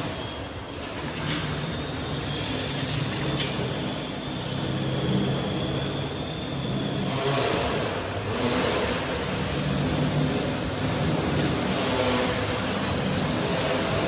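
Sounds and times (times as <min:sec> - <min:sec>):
faint high whine: 0:00.0 - 0:08.3.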